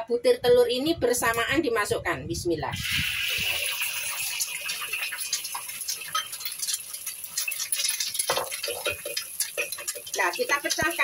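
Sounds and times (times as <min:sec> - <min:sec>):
eggs frying in hot oil: 0:02.8 - 0:11.0.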